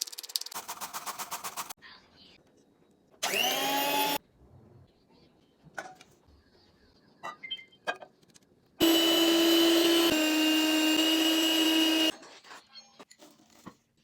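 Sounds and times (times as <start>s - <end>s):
kitchen appliance motor whining: 3.2s - 4.2s, 8.8s - 12.1s.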